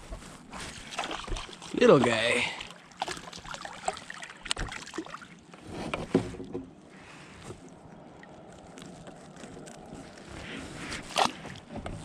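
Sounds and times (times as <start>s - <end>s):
knocks and clatters on kayak hull: 5.6s - 6.8s.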